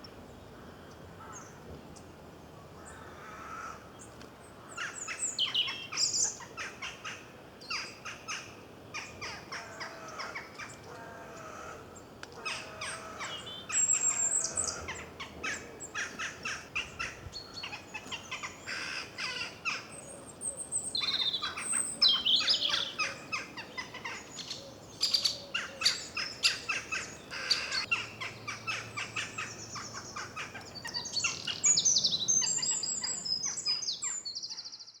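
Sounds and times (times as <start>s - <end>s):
small birds chirping and singing: 4.0s - 7.0s, 9.0s - 35.0s.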